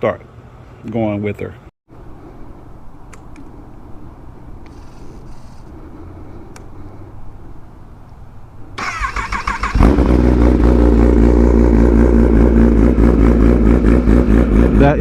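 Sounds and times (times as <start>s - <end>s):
motorcycle engine idling: 9.9s - 15.0s.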